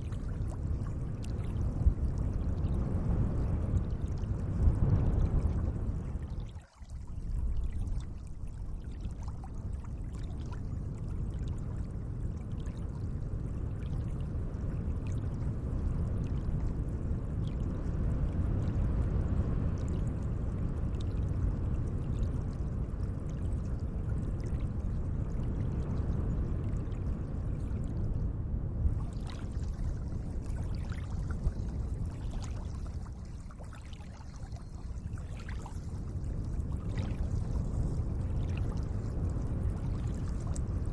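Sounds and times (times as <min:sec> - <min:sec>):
small splashes and drips: 0:00.0 - 0:02.8, 0:03.7 - 0:14.2, 0:28.9 - 0:40.8
lake water lapping: 0:29.0 - 0:36.0.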